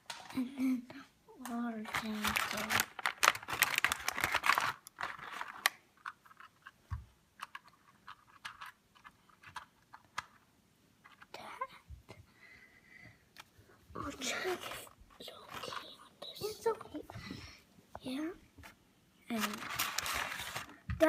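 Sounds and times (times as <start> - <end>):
plastic toy train pieces clicking: 7.4 - 10.4.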